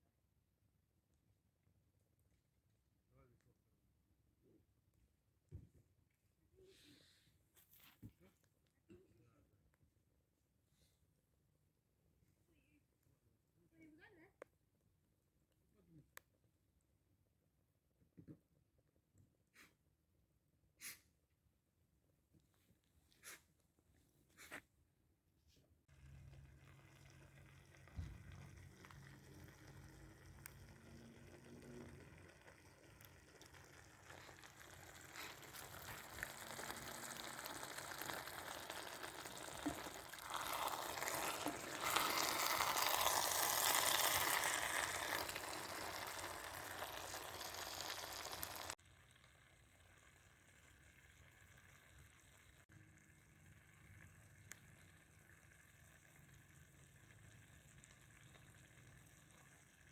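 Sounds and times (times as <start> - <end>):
food sizzling in a pan: 25.9 - 52.6.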